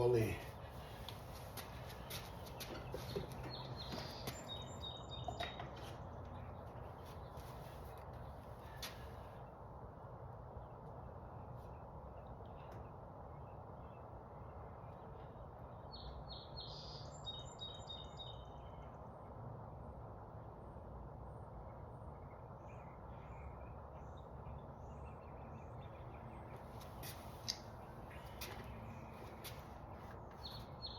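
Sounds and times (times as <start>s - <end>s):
outdoor background noise: 0.0s - 30.9s
bird chirping: 1.7s - 8.0s, 11.4s - 19.0s, 22.2s - 30.9s.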